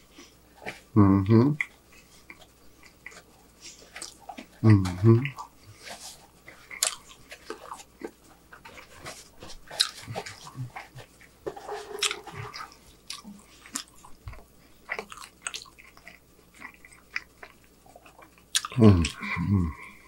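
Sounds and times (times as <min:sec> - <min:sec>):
wet chewing and lip-smacking: 0:01.6 - 0:11.4, 0:12.0 - 0:19.2
person humming briefly: 0:18.8 - 0:20.0.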